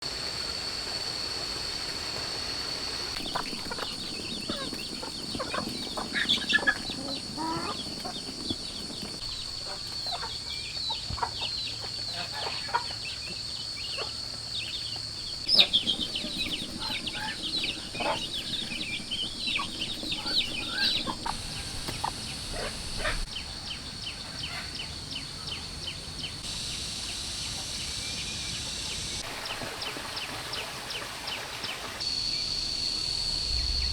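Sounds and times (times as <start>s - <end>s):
chickens clucking: 3.1s - 25.0s
high-pitched whine: 32.1s - 33.9s.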